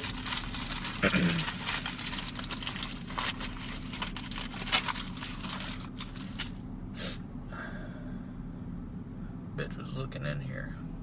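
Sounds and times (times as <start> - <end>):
crunching from eating: 0.0 - 6.6
steady low hum: 0.0 - 11.0.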